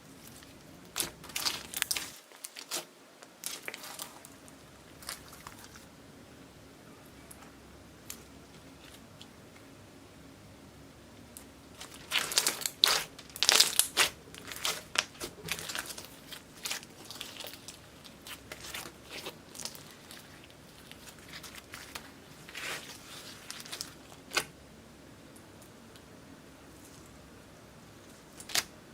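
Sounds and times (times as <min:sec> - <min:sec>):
slime crackling and popping: 0:00.8 - 0:04.3, 0:11.8 - 0:24.5.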